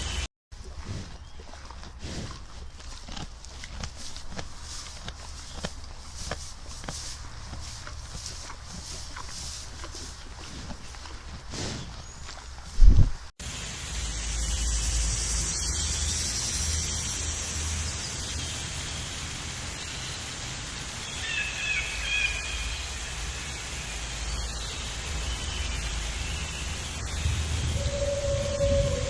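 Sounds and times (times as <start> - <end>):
low wind rumble: 12.6 - 29.0
outdoor background hiss: 12.8 - 29.0
wavering animal calls: 27.0 - 29.0.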